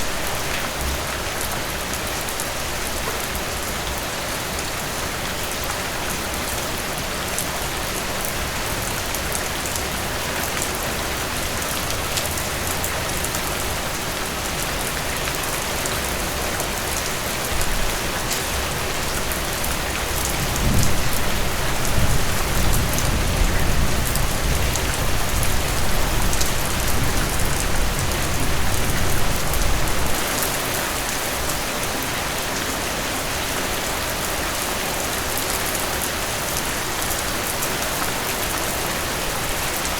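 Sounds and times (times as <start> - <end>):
heavy rain falling: 0.0 - 39.9
thunder rumbling: 20.4 - 29.9.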